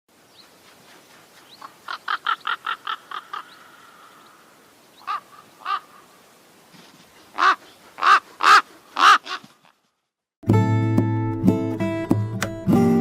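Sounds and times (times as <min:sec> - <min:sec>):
crow cawing: 0:01.9 - 0:06.2, 0:07.3 - 0:09.6.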